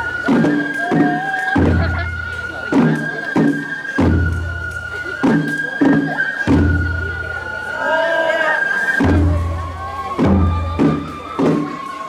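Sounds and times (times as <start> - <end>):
slow steady drum rhythm: 0.0 - 7.8, 9.0 - 12.0
bamboo flute high notes: 0.0 - 12.0
deep taiko drum boom: 9.0 - 11.6.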